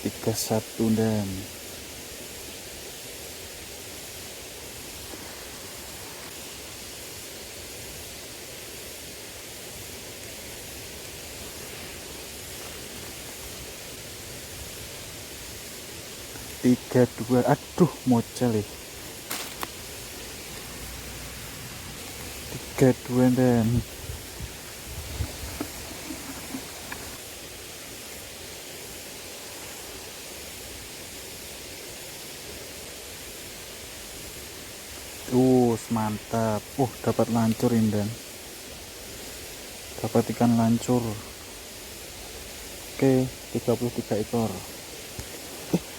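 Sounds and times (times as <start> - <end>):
river water rushing: 9.2 - 34.8.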